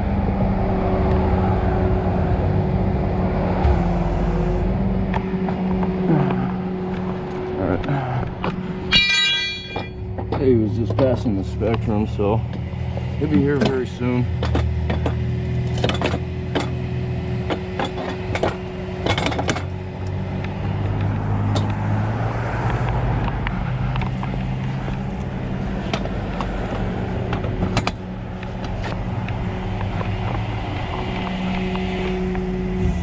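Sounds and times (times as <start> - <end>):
vehicle engine idling: 3.6 - 9.0.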